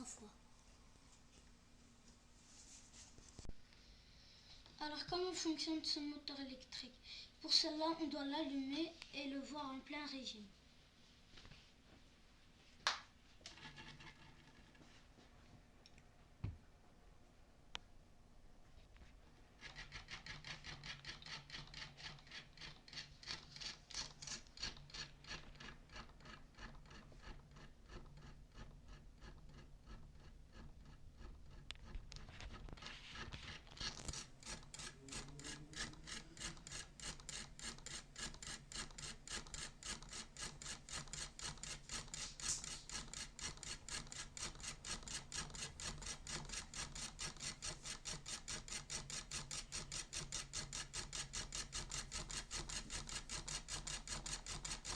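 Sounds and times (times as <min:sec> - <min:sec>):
electric motor brushes scraping: 0:33.1 - 0:37.6.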